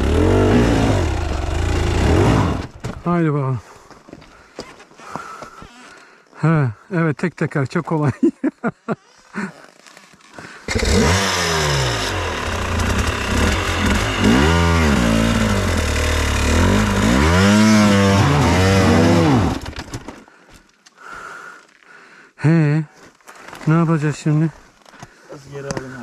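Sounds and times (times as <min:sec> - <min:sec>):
dirt bike engine revving: 0:00.0 - 0:02.8, 0:10.7 - 0:19.8.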